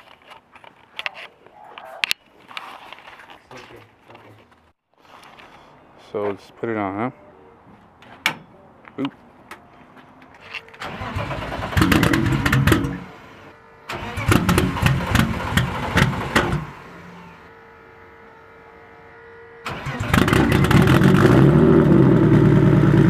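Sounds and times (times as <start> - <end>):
car engine starter cranking: 10.7 - 17.2, 19.6 - 21.4
car engine idling: 10.8 - 18.4, 19.6 - 23.0.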